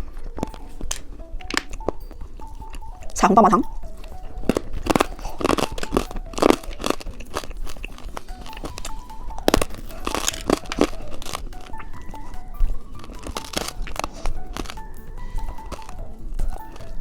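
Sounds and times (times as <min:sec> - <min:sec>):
candy crunching and crinkling: 0:00.0 - 0:17.0
quiet background music: 0:00.0 - 0:17.0.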